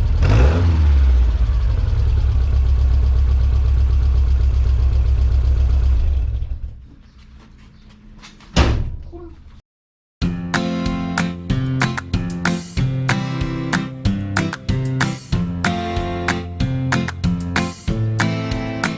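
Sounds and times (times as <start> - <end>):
sharp thump: 8.6 - 9.1.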